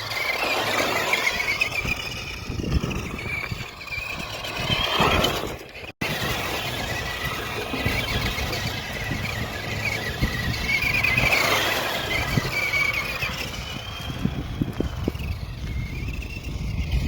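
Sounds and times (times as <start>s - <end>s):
rc car motor whining: 0.0s - 17.0s
tyres crackling on ground: 0.0s - 17.0s.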